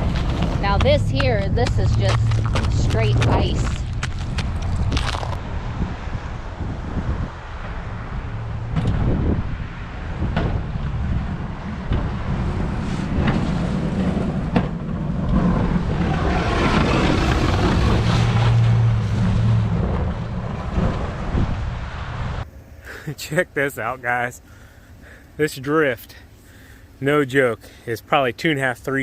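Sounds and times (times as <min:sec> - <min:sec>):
truck engine running: 0:00.0 - 0:22.4
plow scraping and rushing: 0:00.0 - 0:22.5.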